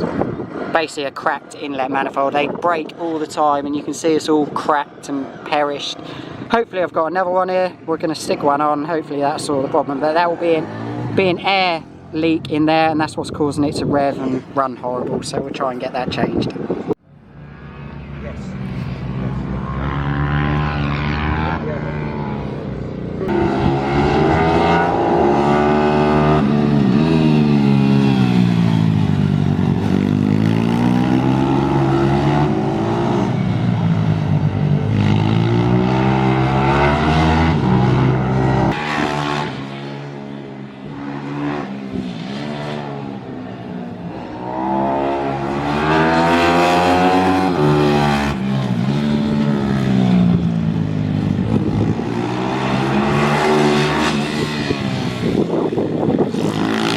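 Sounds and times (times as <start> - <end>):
pit bike engine revving: 17.6 - 43.6, 44.2 - 56.9.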